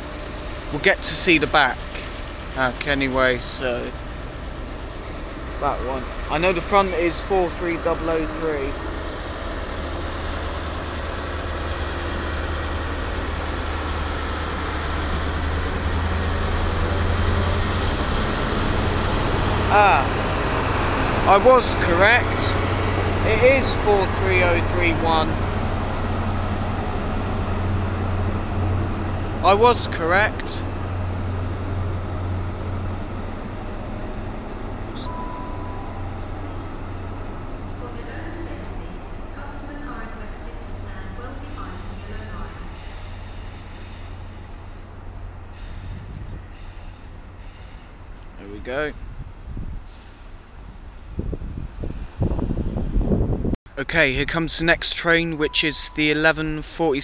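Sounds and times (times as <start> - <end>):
diesel train engine drone: 0.0 - 57.0
rail and station noise: 0.0 - 57.0
brief high beep: 35.0 - 36.2, 55.2 - 56.5.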